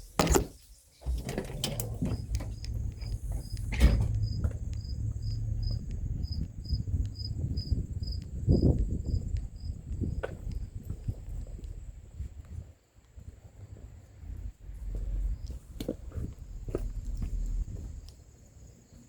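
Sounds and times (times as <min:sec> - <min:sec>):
insect chirping: 0:00.5 - 0:12.2
low steady rumble: 0:01.1 - 0:12.7, 0:13.6 - 0:18.7.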